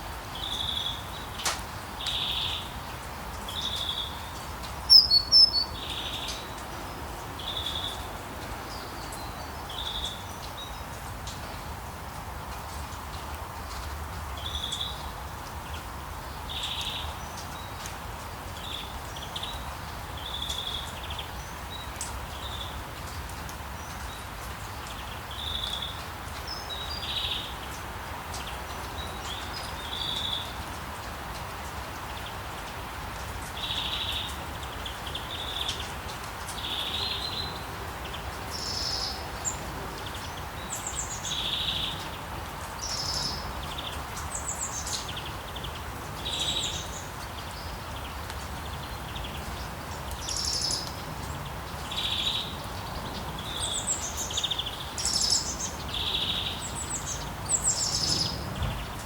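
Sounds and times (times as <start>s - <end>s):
rain hissing: 0.0s - 59.0s
birds chirping: 3.5s - 8.1s, 42.8s - 59.0s
low rumble of town: 55.7s - 59.0s.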